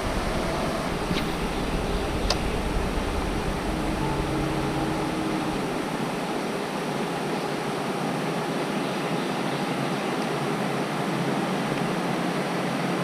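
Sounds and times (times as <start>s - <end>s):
low rumble: 0.0s - 8.0s.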